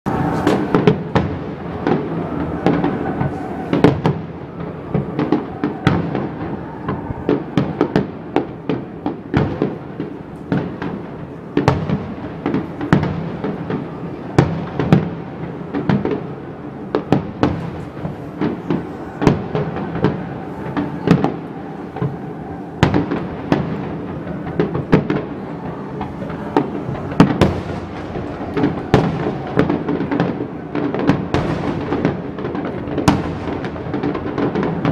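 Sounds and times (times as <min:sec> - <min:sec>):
fireworks bursting: 0:00.1 - 0:34.9.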